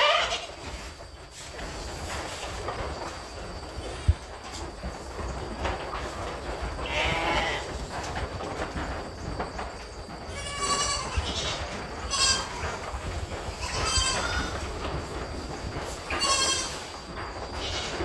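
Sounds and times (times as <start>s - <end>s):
goats bleating: 0.0s - 0.6s, 6.8s - 7.7s, 10.3s - 12.8s, 13.5s - 14.7s, 16.0s - 16.9s, 17.6s - 18.0s.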